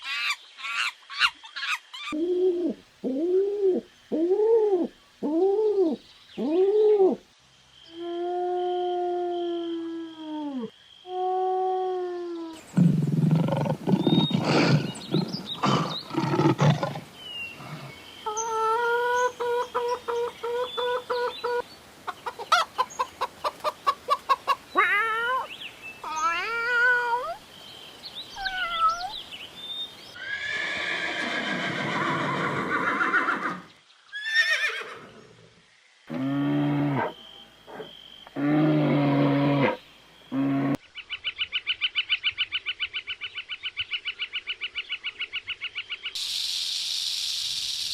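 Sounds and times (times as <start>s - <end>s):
animal calls: 11.4s - 21.6s.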